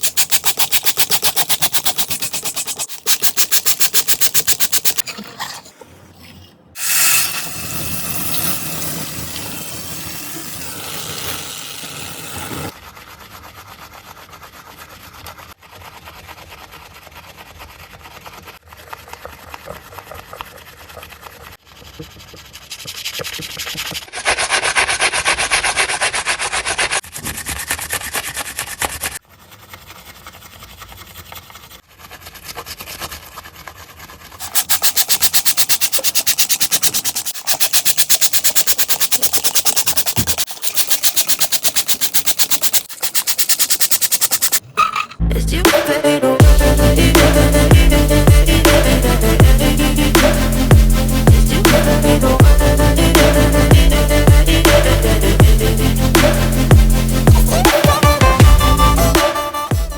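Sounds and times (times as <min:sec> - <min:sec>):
scrubbing dirty surfaces: 0:00.0 - 0:06.3, 0:33.0 - 0:45.1.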